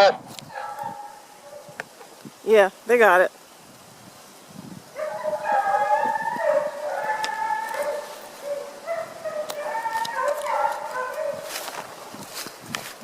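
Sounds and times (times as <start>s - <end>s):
hounds baying: 0.0s - 1.8s, 5.0s - 11.9s.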